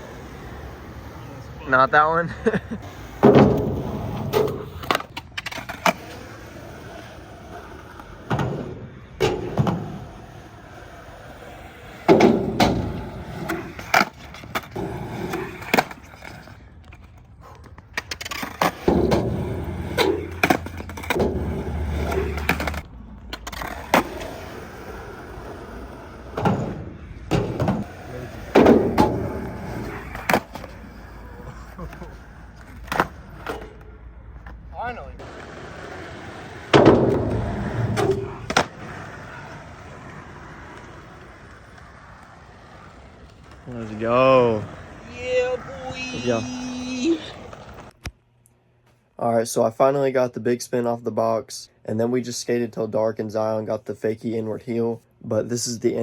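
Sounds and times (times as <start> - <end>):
skateboards rolling: 0.0 - 48.9
skateboard clacks and slaps: 2.8 - 34.6, 35.2 - 43.7.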